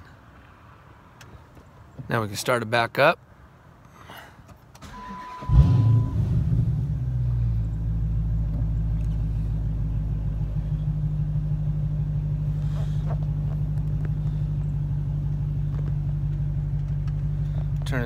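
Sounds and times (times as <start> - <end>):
car engine idling: 5.5 - 18.0.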